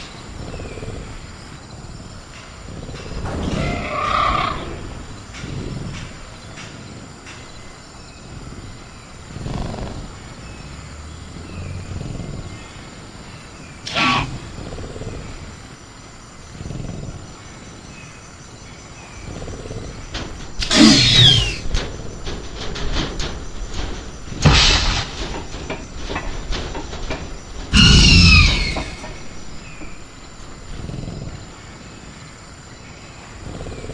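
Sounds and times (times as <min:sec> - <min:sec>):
faint crickets: 0:00.0 - 0:33.9
creature growling and snarling: 0:13.9 - 0:15.6, 0:19.3 - 0:22.0.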